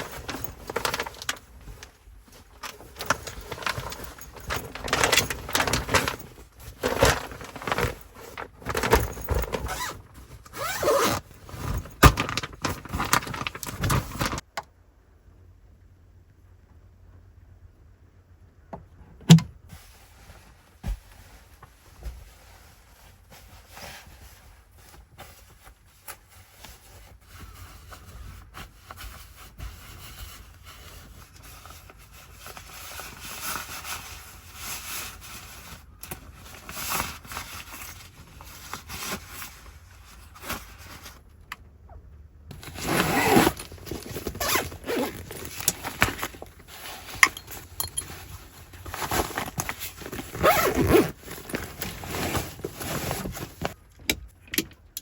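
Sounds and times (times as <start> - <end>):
zips and scrapes of handling: 0.0 - 14.4, 42.5 - 53.8.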